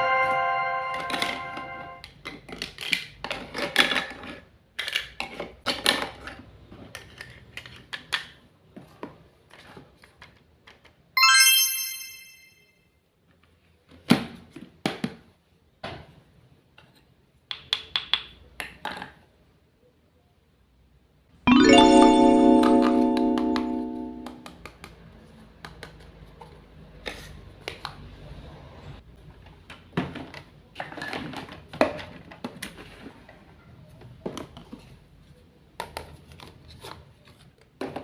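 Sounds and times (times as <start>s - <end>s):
bright ringing chime: 0.0s - 2.0s, 11.2s - 12.6s, 21.5s - 24.5s.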